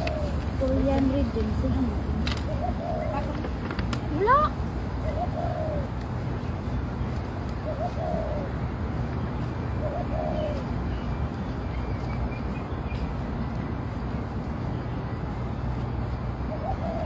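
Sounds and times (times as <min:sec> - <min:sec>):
bird calling: 0:00.0 - 0:06.5, 0:07.5 - 0:08.6, 0:09.5 - 0:13.1, 0:16.4 - 0:17.0.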